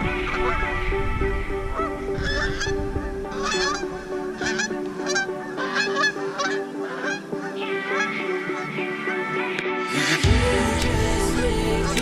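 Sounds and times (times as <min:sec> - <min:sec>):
geese honking: 0:00.0 - 0:10.3.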